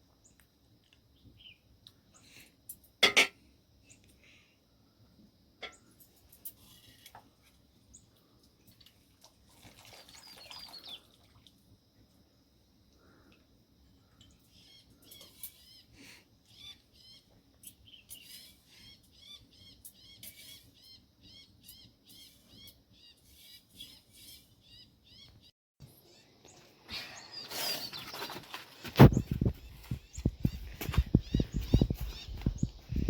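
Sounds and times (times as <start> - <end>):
small bird chirping: 1.1 - 1.7, 10.1 - 11.1, 14.2 - 28.4, 29.0 - 33.0.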